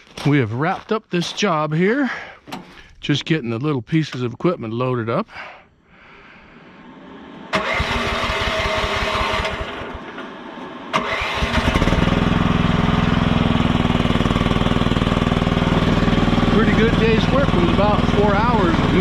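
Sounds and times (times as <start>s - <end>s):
engine idling: 6.8s - 19.0s
engine starter cranking: 7.5s - 12.7s.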